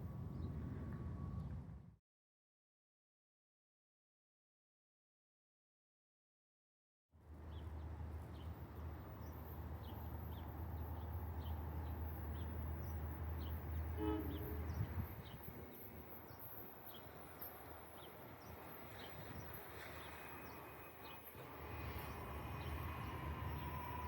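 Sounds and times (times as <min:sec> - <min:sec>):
train horn toot: 0:13.8 - 0:15.3.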